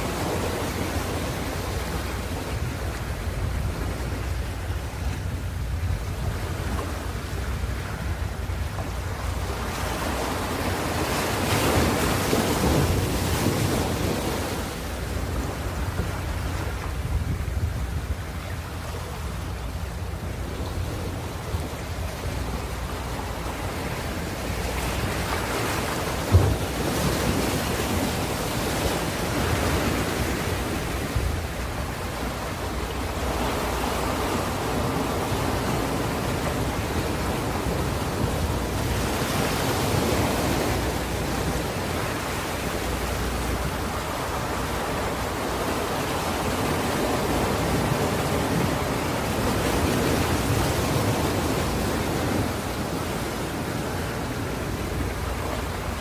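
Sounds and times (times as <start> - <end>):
ocean waves breaking: 0.0 - 56.0
low thump: 26.3 - 26.6.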